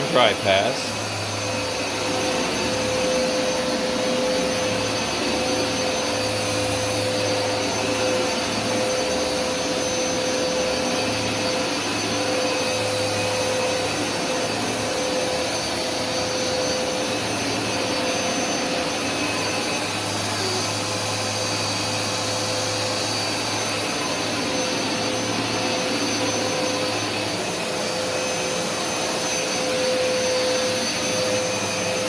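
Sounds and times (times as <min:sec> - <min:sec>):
carpet cleaner motor whine: 0:00.0 - 0:32.0.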